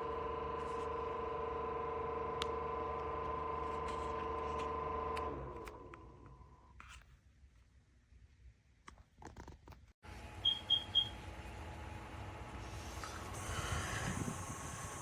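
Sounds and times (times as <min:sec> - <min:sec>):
air cooler fan running: 0:10.0 - 0:15.0
high electronic beeps: 0:10.4 - 0:11.1.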